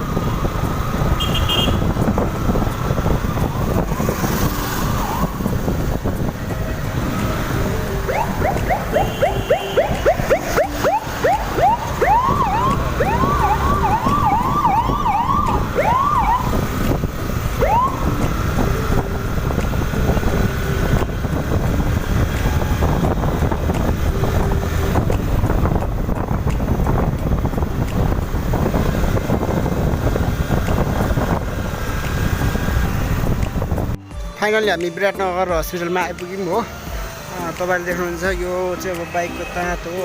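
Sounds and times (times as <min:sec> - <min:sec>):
wind and road noise: 0:00.0 - 0:40.0
siren yelping: 0:08.0 - 0:16.5, 0:17.6 - 0:18.2.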